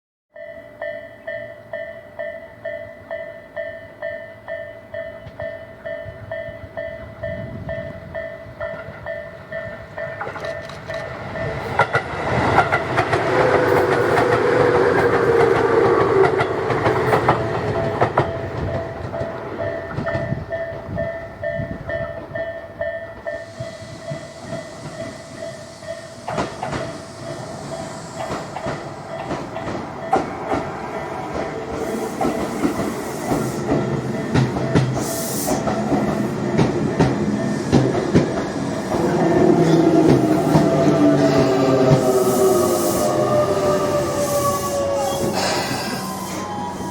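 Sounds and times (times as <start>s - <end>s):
electric train inverter whine: 0.4s - 46.9s
wheels clicking over rail joints: 8.6s - 21.0s, 26.2s - 42.2s
high hiss: 23.4s - 29.0s, 41.2s - 46.9s.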